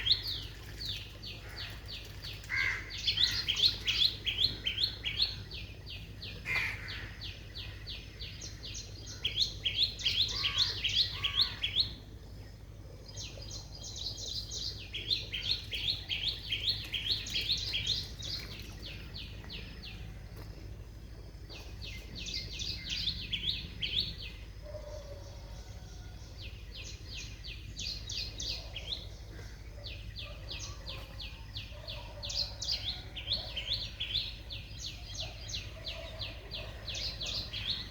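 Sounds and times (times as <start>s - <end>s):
steady low hum: 0.0s - 24.8s
small birds chirping: 0.0s - 37.9s.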